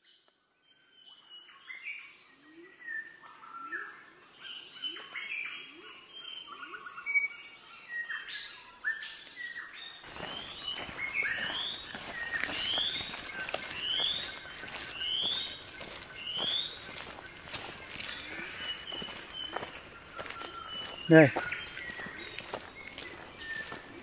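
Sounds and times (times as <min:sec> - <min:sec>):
forest birds chirping and whistling: 0:00.0 - 0:24.0
outdoor rustling noise: 0:10.0 - 0:24.0.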